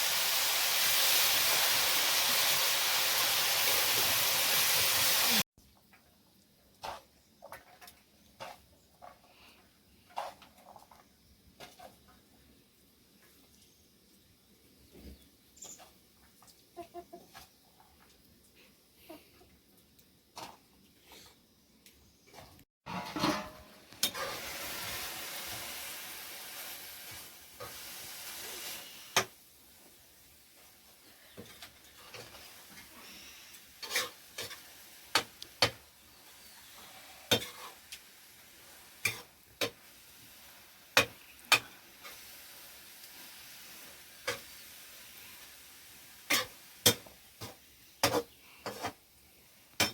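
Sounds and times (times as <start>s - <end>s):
food sizzling in a pan: 0.0s - 5.5s, 23.9s - 49.9s
utensil scraping a pan: 22.9s - 25.0s, 33.8s - 35.8s, 36.7s - 37.9s, 46.3s - 49.0s.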